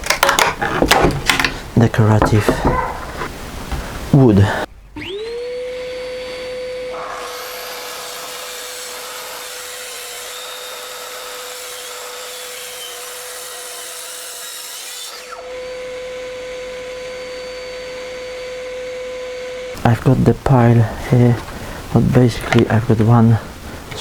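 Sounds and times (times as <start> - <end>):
electric saw cutting wood: 5.0 - 19.8.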